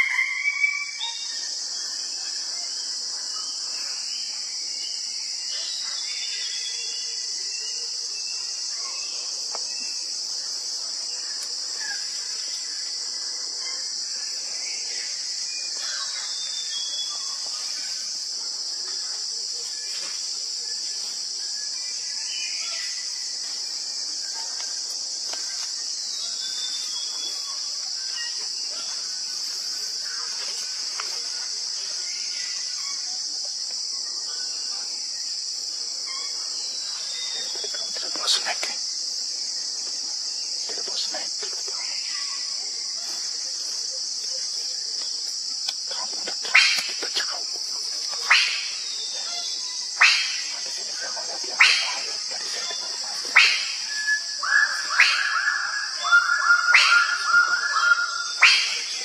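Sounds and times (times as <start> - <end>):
insects chorus: 0.0 - 59.0
faint bird chirps: 11.1 - 24.8, 25.4 - 33.3.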